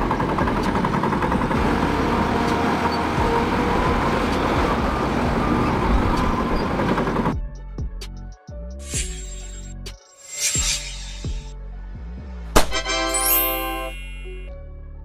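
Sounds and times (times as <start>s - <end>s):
bulldozer diesel engine running: 0.0s - 7.3s.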